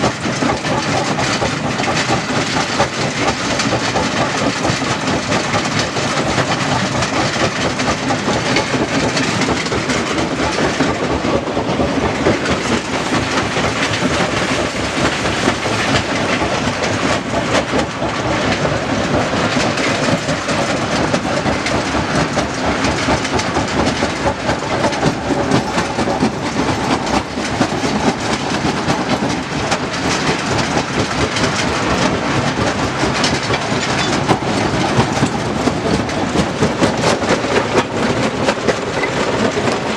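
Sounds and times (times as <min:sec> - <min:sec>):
stone crusher rattling: 0:12.0 - 0:17.5.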